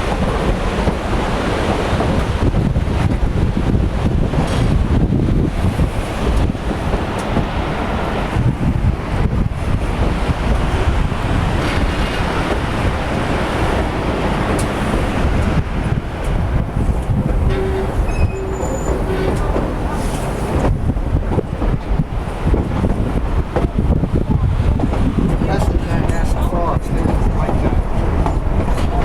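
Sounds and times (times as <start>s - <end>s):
train wheels rumbling on rails: 0.0s - 29.0s
wheel squeals: 17.5s - 19.6s.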